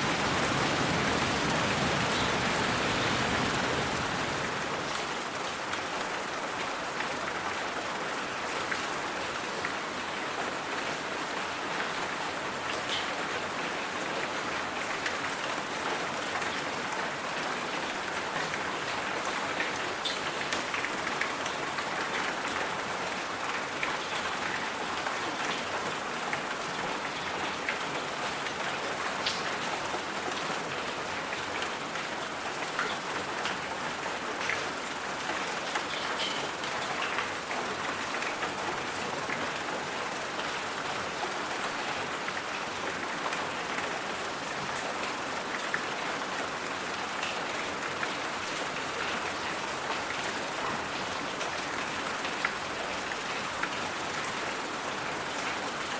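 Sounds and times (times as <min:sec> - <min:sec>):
rain drops ticking: 0:00.0 - 0:55.9
steady rain hiss: 0:00.0 - 0:55.9.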